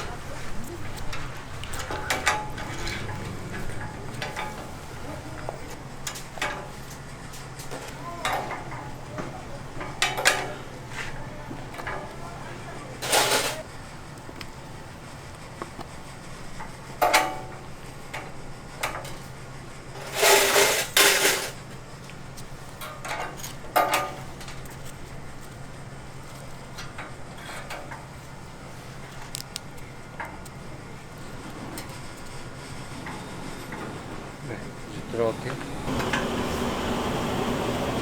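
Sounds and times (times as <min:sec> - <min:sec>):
dishes and pans clattering: 0:00.0 - 0:06.8, 0:07.7 - 0:11.2, 0:13.0 - 0:13.7, 0:20.0 - 0:21.6
kitchen ventilation hum: 0:00.0 - 0:38.0.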